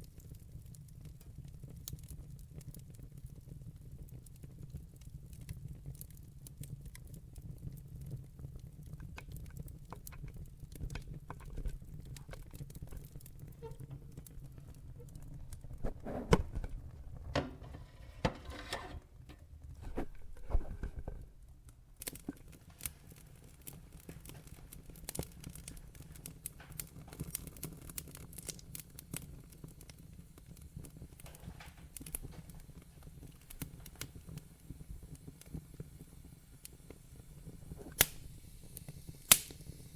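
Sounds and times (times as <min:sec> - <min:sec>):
wood fire crackling: 0:00.0 - 0:39.9
sharp pops from fire: 0:22.0 - 0:39.9.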